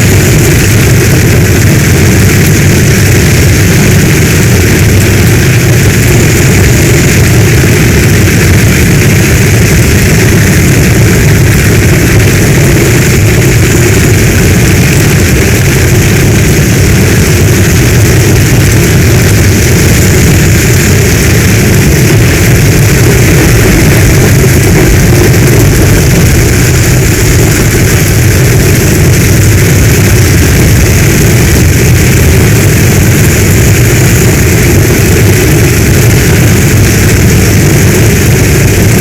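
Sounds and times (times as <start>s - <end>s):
heavy rain falling: 0.0s - 39.0s.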